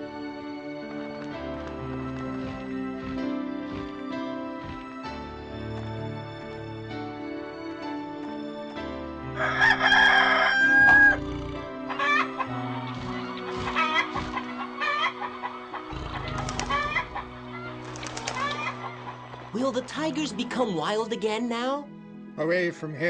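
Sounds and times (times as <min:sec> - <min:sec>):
soft background music: 0:00.0 - 0:23.0
rooster crowing: 0:09.4 - 0:12.8, 0:16.6 - 0:17.2
hens clucking: 0:10.0 - 0:19.7.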